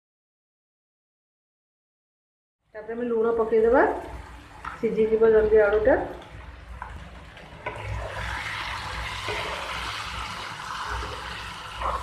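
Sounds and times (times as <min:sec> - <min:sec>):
curry sizzling in a frying pan: 0:06.4 - 0:12.0
spatula scraping a pan: 0:07.6 - 0:12.0.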